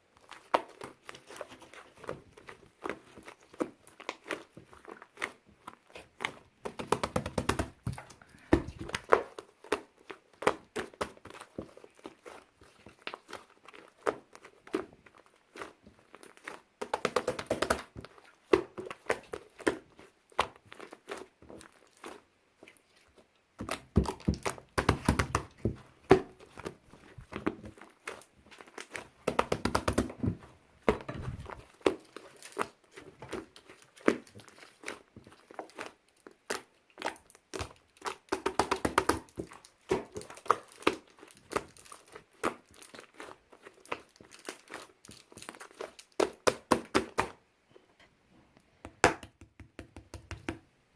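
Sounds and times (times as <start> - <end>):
wrapper crinkling and tearing: 31.2 - 38.3, 39.2 - 46.9.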